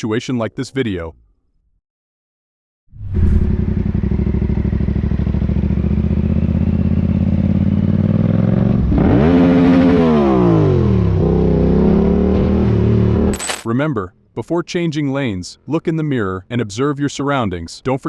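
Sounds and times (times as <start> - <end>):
motorcycle engine revving: 3.0 - 13.5.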